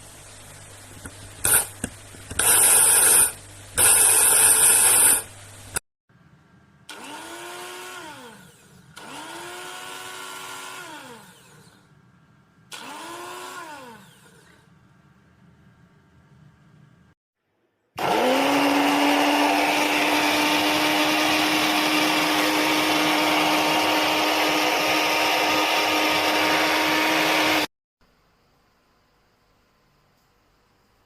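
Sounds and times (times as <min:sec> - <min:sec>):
electric coffee grinder pulses: 0:01.4 - 0:05.3, 0:06.9 - 0:11.9, 0:12.7 - 0:14.7, 0:18.0 - 0:27.7.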